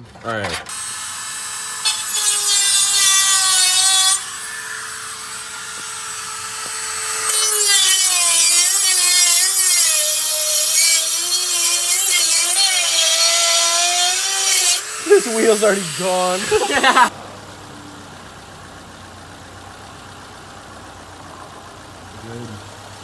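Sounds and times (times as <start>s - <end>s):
power tool cutting: 0.7s - 17.1s.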